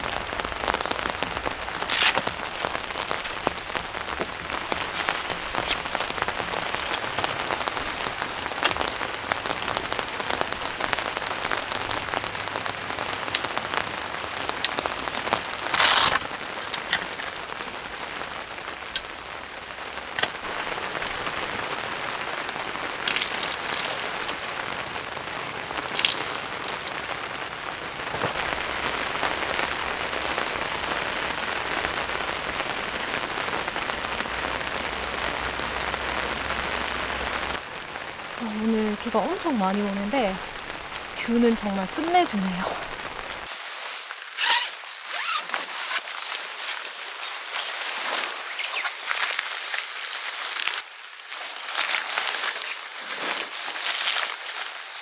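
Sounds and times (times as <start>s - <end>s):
heavy rain: 0.0s - 55.0s
water splashes: 19.8s - 29.7s
drops ticking: 22.4s - 27.2s.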